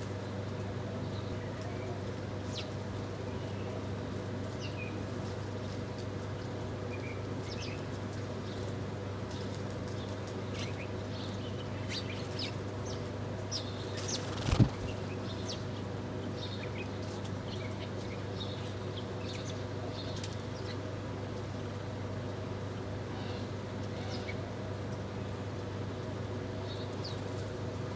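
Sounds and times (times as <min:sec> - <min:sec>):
small birds chirping: 0:09.3 - 0:15.8
steady low hum: 0:13.4 - 0:15.6
loud flurry of noise: 0:14.1 - 0:15.2.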